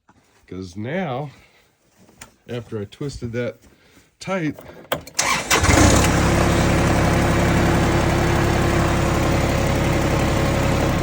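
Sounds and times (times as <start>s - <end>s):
diesel tractor engine idling: 5.2s - 11.0s.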